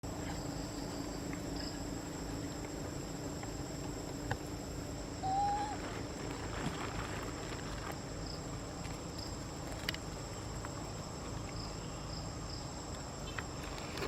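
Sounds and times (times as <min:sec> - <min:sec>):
insects shrilling: 0:04.4 - 0:11.0.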